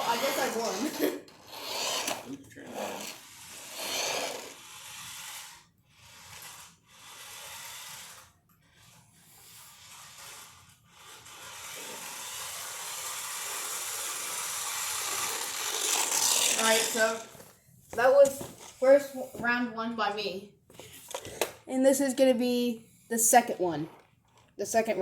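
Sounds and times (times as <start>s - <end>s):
toy car motor whirring: 0.0s - 17.4s.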